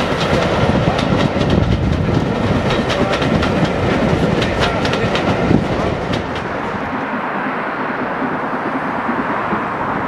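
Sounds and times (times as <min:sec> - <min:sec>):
wheels clicking over rail joints: 0:00.0 - 0:06.9
train wheels rumbling: 0:00.0 - 0:10.0.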